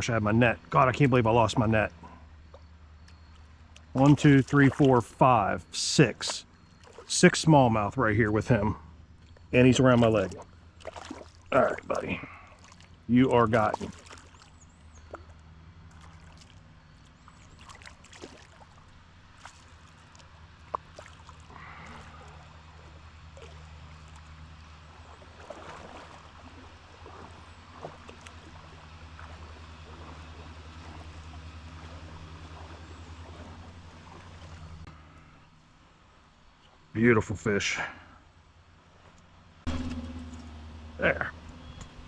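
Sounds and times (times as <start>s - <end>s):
creek water trickling: 0.0s - 42.0s
small clicks and splashes: 2.4s - 5.2s, 6.4s - 7.1s, 9.2s - 35.3s.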